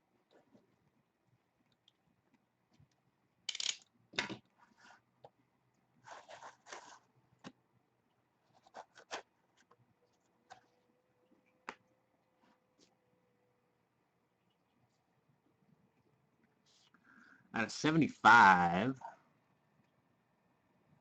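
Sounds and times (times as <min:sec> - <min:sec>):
packaging scraping and rustling: 0:06.0 - 0:07.1.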